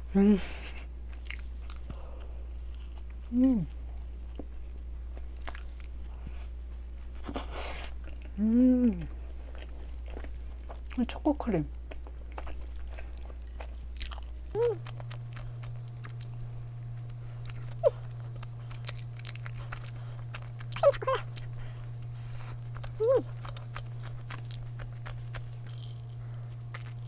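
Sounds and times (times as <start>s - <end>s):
person chewing wetly: 1.1s - 6.0s, 9.0s - 11.0s, 11.8s - 27.0s
person humming mm: 3.3s - 3.7s, 8.4s - 9.1s, 14.5s - 15.7s, 20.2s - 23.9s.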